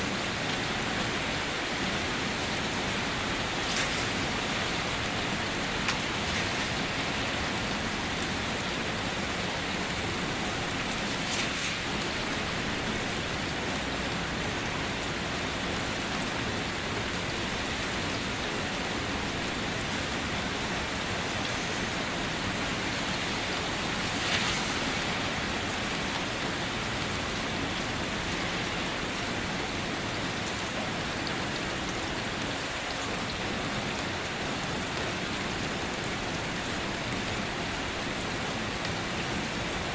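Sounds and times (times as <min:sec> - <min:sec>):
rain pattering on surfaces: 0:00.0 - 0:39.9
water splashes: 0:00.2 - 0:16.6, 0:17.4 - 0:29.8.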